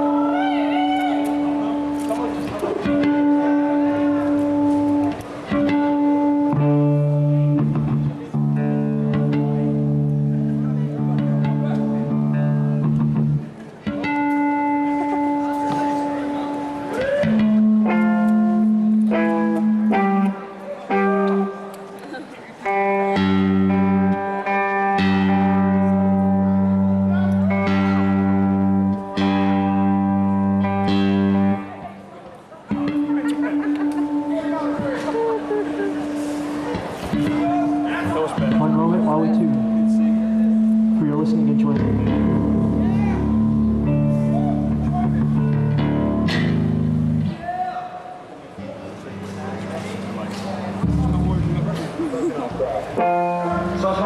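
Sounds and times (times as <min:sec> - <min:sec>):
bass guitar: 0:00.0 - 0:21.8, 0:22.7 - 0:32.0, 0:32.7 - 0:47.4, 0:49.2 - 0:54.0
amplified guitars playing chords: 0:00.0 - 0:47.5, 0:48.5 - 0:54.0
electric string instrument low note: 0:32.8 - 0:47.3, 0:49.8 - 0:52.1.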